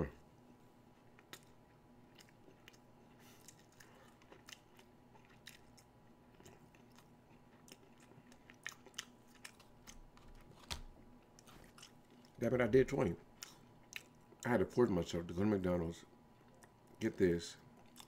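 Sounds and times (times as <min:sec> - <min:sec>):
low steady hum: 0:00.0 - 0:18.0
chewing with mouth clicks: 0:01.0 - 0:12.4, 0:13.3 - 0:14.5, 0:17.6 - 0:18.0.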